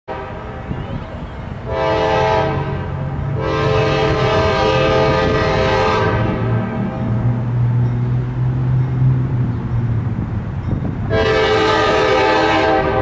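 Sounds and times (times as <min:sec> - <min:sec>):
locomotive air horn blasts: 0:00.1 - 0:07.4, 0:11.1 - 0:13.0
diesel locomotive drone: 0:00.1 - 0:13.0.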